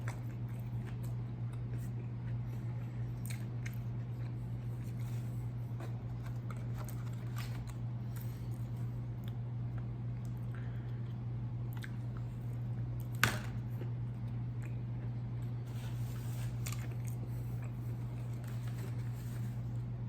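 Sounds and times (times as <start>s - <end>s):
person chewing food: 0.0s - 13.1s.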